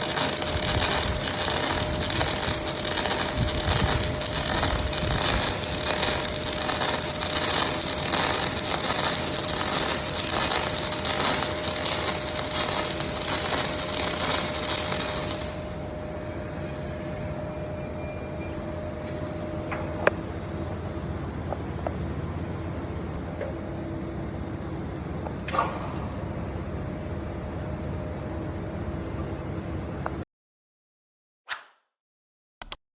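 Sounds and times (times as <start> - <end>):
welding arc crackling: 0.0 - 15.7
machine hum with faint tone: 0.0 - 30.2.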